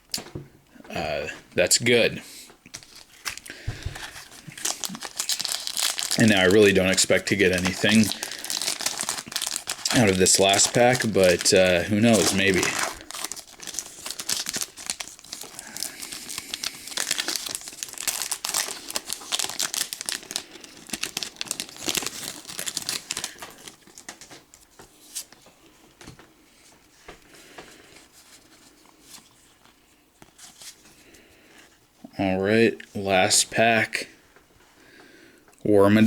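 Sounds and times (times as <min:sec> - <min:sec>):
foil wrapper crinkling and tearing: 0:02.7 - 0:25.3.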